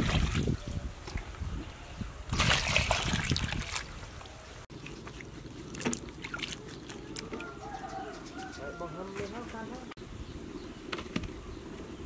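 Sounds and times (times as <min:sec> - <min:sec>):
water splashing and trickling: 0:00.0 - 0:08.3.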